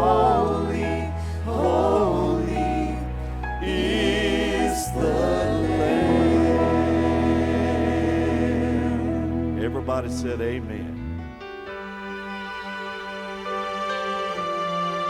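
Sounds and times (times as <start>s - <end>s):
church worship singing: 0.0s - 12.0s
instrumental accompaniment: 0.0s - 15.0s.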